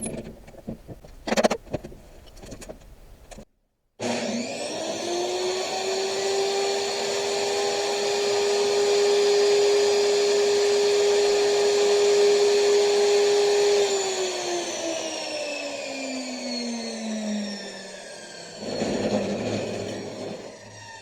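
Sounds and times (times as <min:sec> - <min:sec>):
power saw motor whining: 0:04.0 - 0:21.0.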